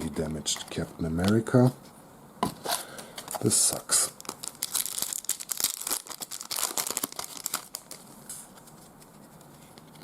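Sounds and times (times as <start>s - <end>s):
card pack wrapper crinkling: 3.2s - 8.9s.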